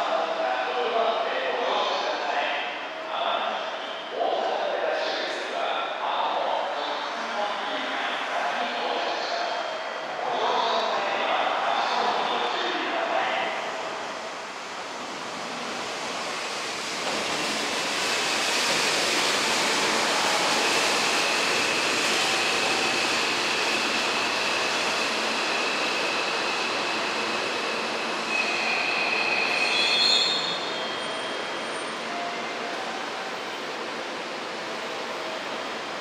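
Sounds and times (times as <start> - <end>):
train wheels rushing on rail: 6.8 - 36.0
high wheel squeal: 20.6 - 32.5.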